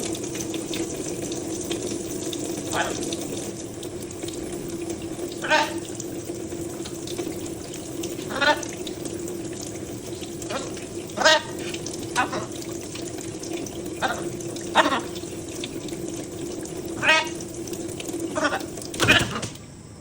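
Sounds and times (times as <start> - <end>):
tap water running into sink: 0.0 - 19.6
parrot squawking: 2.7 - 3.0, 5.4 - 5.8, 8.2 - 8.7, 10.5 - 12.5, 14.0 - 15.1, 17.0 - 17.4.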